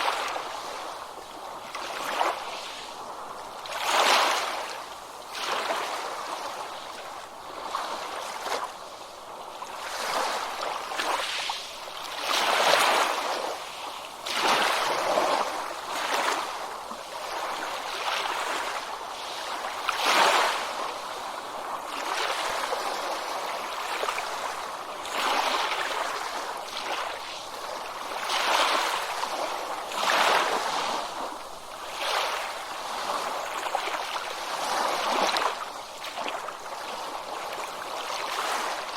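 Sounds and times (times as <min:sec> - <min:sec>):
small ocean waves washing in: 0:00.0 - 0:38.9.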